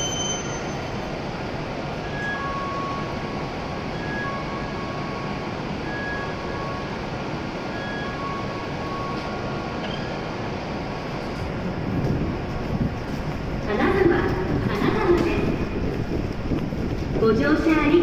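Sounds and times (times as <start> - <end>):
faint short high tones: 0.0 - 0.9
train equipment hum and hiss: 0.0 - 18.0.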